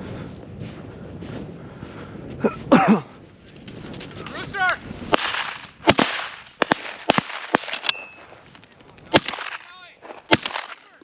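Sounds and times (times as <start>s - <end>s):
shotgun shots: 5.1s - 8.0s, 9.1s - 11.0s.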